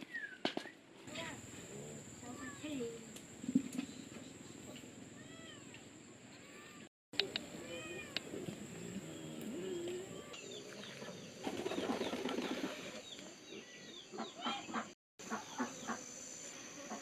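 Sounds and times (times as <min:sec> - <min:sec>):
chickens clucking and chirping: 0:08.2 - 0:16.1.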